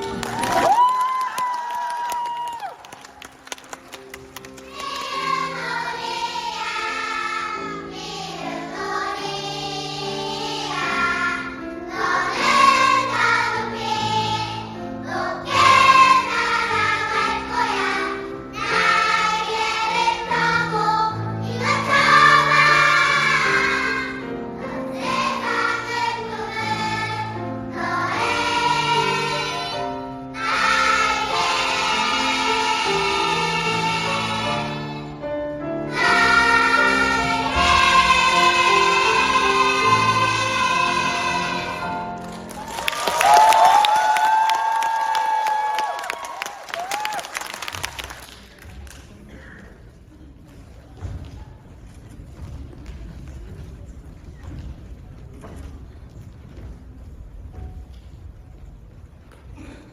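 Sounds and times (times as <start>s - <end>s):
choir singing in parts: 4.6s - 42.9s.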